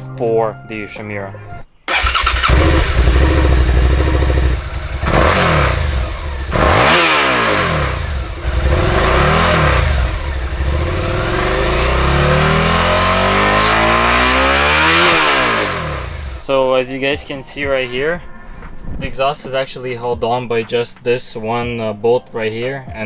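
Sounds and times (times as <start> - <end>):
motorcycle engine revving: 1.9 - 16.5.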